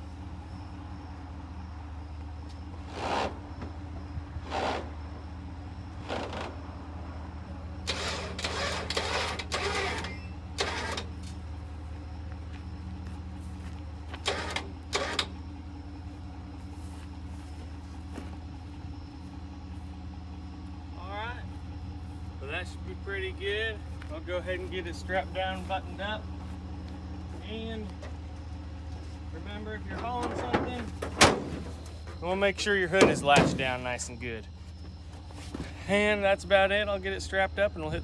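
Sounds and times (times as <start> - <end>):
vehicle engine idling: 0.0 - 38.0
knocks and clanks: 29.9 - 32.2, 32.9 - 34.1.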